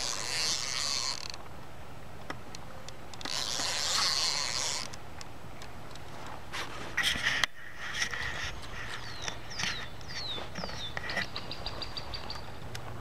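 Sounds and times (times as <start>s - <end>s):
fishing reel drag buzzing: 0.0s - 1.4s, 3.2s - 5.0s.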